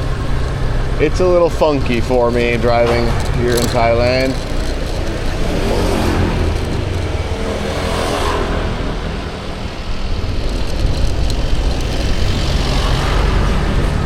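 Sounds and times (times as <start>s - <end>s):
motorbike engine rumble: 0.0s - 14.0s
road and wind noise: 0.0s - 14.0s.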